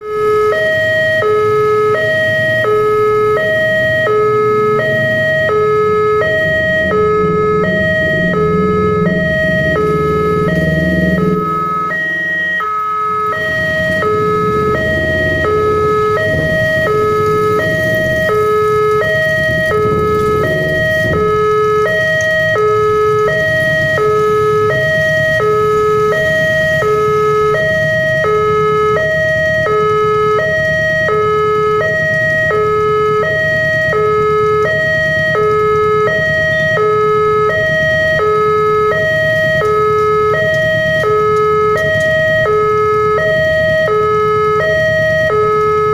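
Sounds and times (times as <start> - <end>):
level crossing two-tone alarm: 0.0 - 45.9
low rumble: 2.0 - 31.1.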